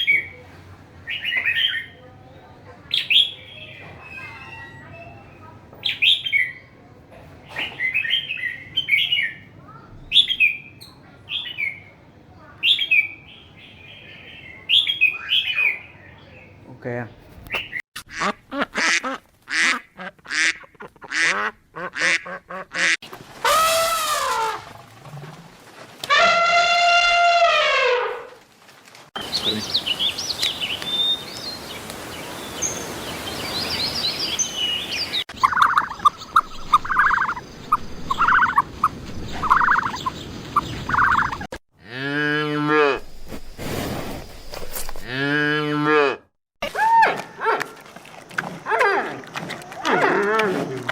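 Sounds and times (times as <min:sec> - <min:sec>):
long rising and falling calls: 0:29.2 - 0:41.5.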